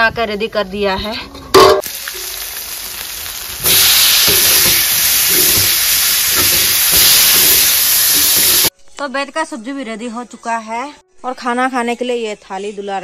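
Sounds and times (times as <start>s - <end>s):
ladle knocking on wok: 1.5s - 1.9s
food sizzling in a wok: 1.6s - 8.7s.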